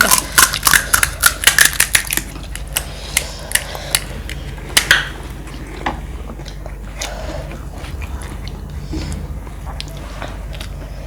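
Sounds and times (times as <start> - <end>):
crunchy snacks being bitten: 0.0 - 4.4.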